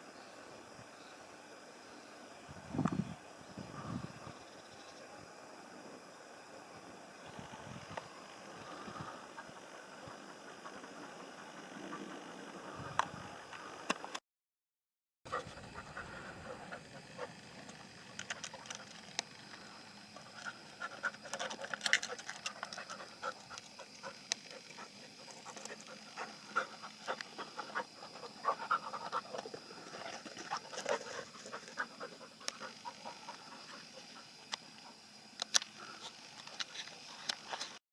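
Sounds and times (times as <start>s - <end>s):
pigs grunting: 20.2s - 34.9s.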